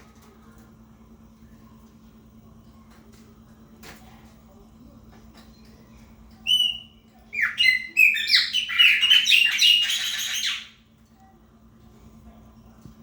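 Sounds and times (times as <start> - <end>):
blackbird whistling song: 6.4 - 10.8.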